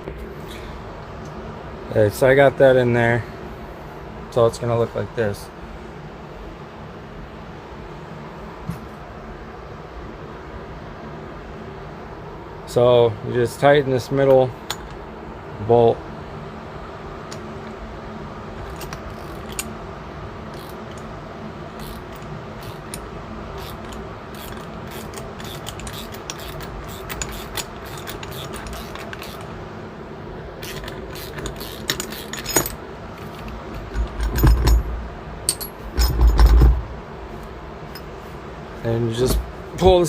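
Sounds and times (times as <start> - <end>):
wrench clicking and clinking: 23.6 - 29.5, 30.6 - 32.8, 35.5 - 36.7.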